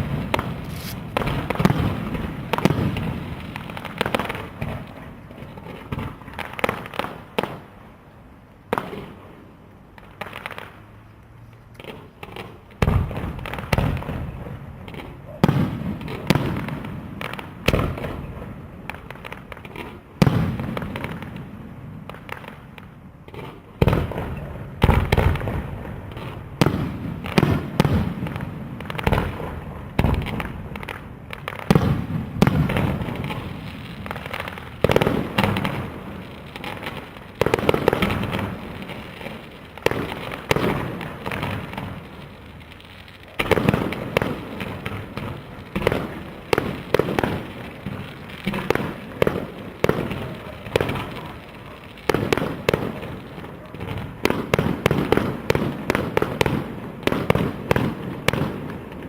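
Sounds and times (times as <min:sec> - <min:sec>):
firework shells bursting: 0:00.0 - 0:05.0
firework pops and crackles: 0:00.0 - 0:59.0.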